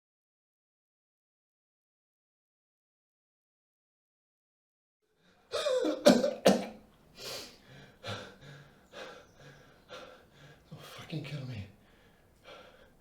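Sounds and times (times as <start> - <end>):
man coughing: 5.5 - 6.8
man gasping heavily: 7.2 - 10.7, 11.8 - 13.0.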